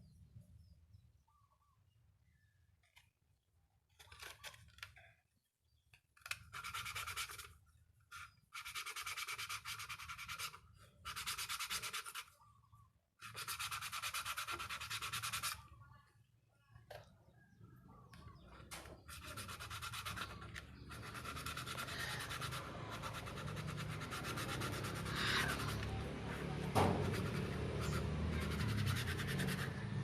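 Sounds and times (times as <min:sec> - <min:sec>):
abrasive rubbing: 0:19.0 - 0:30.0.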